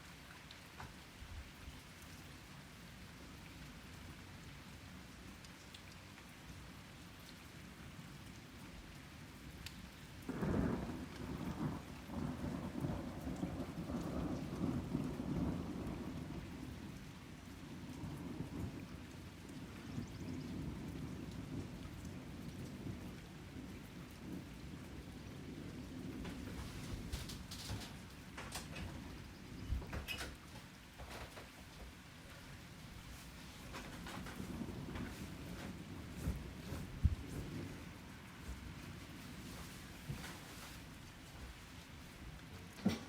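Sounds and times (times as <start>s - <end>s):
steady rain: 0.0s - 43.0s
thunder crack and rumble: 10.2s - 31.9s, 33.1s - 40.8s, 42.4s - 43.0s.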